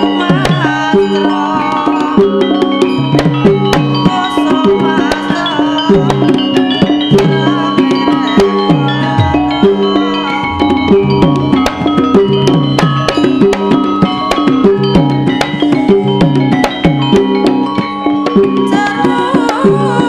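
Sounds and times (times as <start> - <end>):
gamelan music: 0.0 - 20.0
struck pitched tones: 0.0 - 20.0
hand drum strokes falling in pitch: 6.0 - 20.0.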